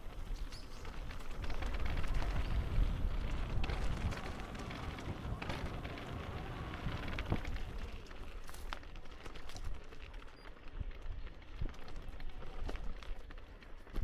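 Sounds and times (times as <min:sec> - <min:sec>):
footsteps crunching on path: 0:00.0 - 0:14.0.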